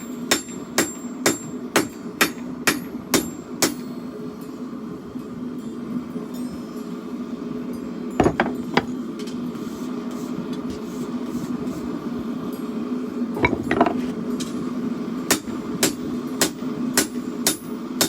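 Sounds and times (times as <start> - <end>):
steady hum: 7.0 - 16.6.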